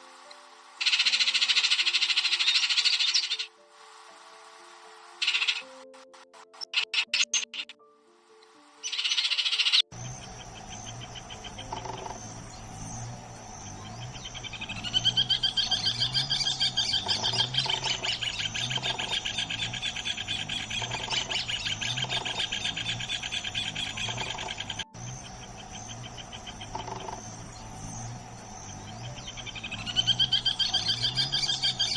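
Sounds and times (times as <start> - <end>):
low wavering hum: 9.9 - 31.9.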